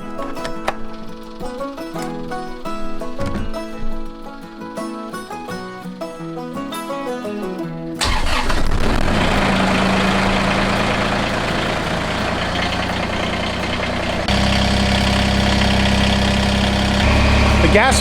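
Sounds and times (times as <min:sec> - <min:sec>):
banjo music: 0:00.0 - 0:18.0
tractor diesel engine running: 0:08.0 - 0:18.0.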